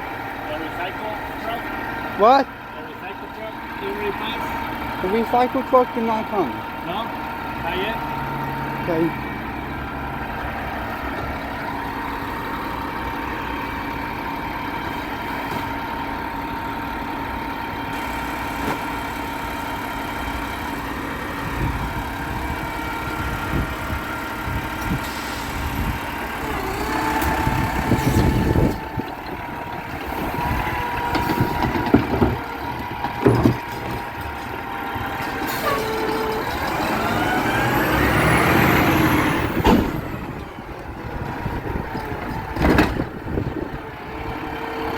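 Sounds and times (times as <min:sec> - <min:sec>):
garbage truck diesel engine: 0:00.0 - 0:44.9
sharp clunks: 0:39.5 - 0:40.5.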